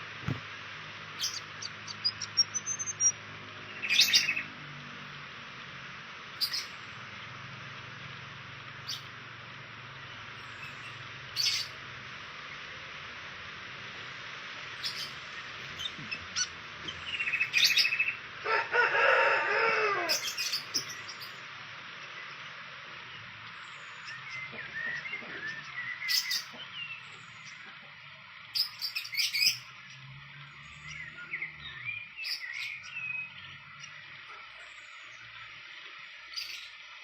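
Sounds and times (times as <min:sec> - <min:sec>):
small birds chirping: 0:00.0 - 0:18.4, 0:20.0 - 0:37.0
rooster crowing: 0:18.4 - 0:20.6.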